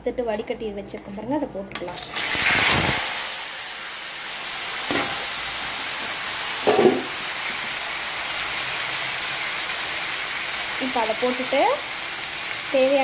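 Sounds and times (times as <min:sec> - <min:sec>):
banana slices sizzling in oil: 0:02.0 - 0:13.0
knocks against pan: 0:06.6 - 0:07.2.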